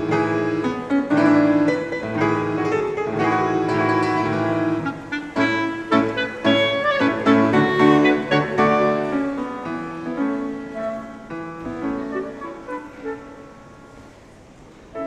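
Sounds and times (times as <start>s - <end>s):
piano notes and chords: 0.0s - 15.0s
held wind instrument tones: 2.9s - 9.5s, 10.1s - 15.0s.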